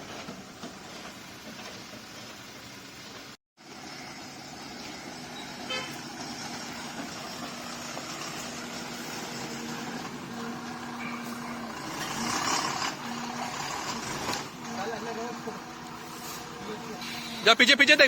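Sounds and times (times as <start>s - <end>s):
traffic noise: 0.0s - 18.0s
vehicle running: 0.0s - 18.0s
steady horn tone: 5.6s - 6.1s.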